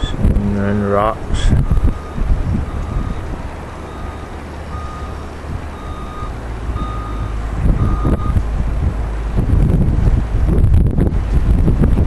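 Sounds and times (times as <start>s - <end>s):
wind rumble on microphone: 0.0s - 12.0s
reversing alarm beeping: 1.6s - 8.4s.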